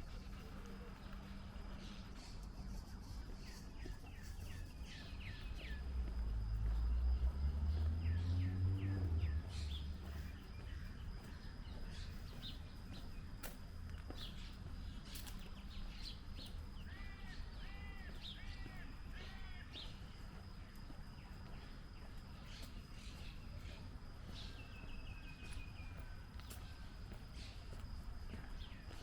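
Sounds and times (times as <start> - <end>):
birds chirping: 0.0 - 29.0
street background: 0.0 - 29.0
loud low rising rumble: 5.2 - 11.0.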